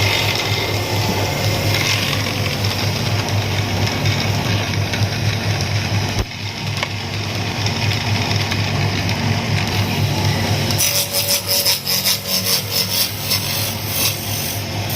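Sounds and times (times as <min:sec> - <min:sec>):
tool rasping wood: 0:00.0 - 0:04.5, 0:10.7 - 0:14.6
machine motor humming: 0:00.0 - 0:10.8.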